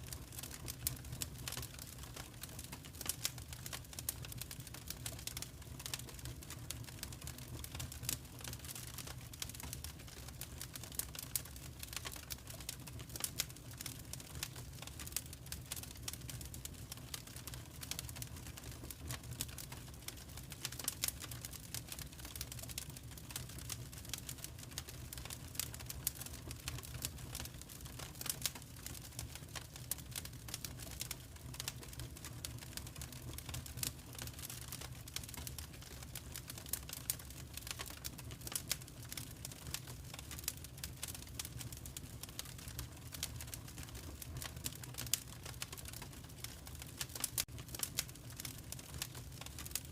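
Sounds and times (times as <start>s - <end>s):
low rumble of burning fire: 0.0s - 49.9s
wood fire crackling: 0.0s - 49.9s.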